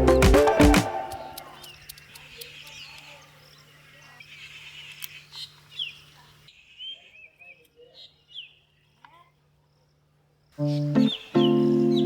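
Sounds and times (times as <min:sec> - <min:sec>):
small birds chirping: 0:00.0 - 0:12.0
faint clicks: 0:01.0 - 0:03.1, 0:04.9 - 0:05.7.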